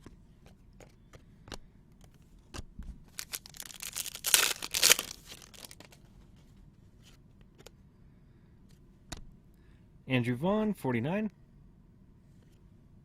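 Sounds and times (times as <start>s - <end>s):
wrapper crinkling and tearing: 3.1s - 6.0s.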